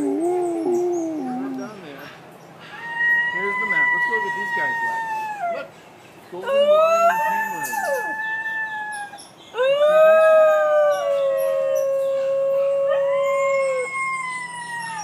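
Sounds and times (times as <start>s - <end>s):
dogs howling: 0.0s - 2.0s, 2.7s - 5.7s, 6.4s - 15.0s.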